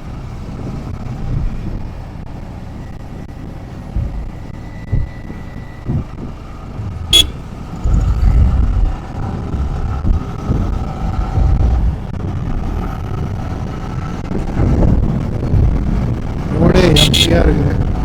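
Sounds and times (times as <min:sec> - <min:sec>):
wind buffeting microphone: 0:00.0 - 0:18.0
faint steady tones: 0:01.9 - 0:08.6, 0:15.5 - 0:17.9
motorcycle engine: 0:06.4 - 0:13.5, 0:16.8 - 0:17.5.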